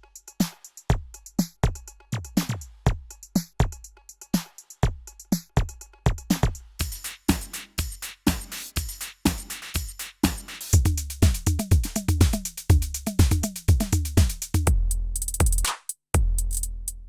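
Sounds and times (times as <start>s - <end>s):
hi-hats: 0.0s - 17.0s
electronic kick drums: 0.9s - 3.8s, 4.8s - 17.0s
snare or clap hits: 6.3s - 12.6s, 13.2s - 14.6s, 15.4s - 16.0s.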